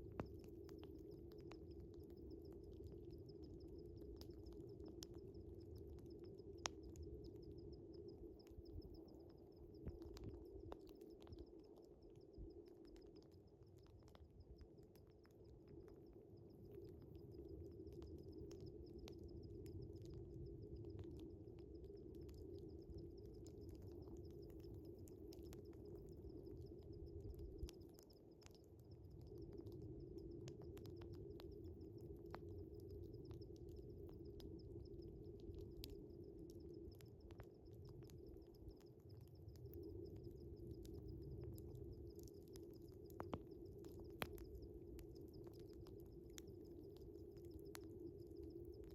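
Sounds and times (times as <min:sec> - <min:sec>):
crickets chirping: 0:00.0 - 0:48.9
wood fire crackling: 0:36.8 - 0:47.9.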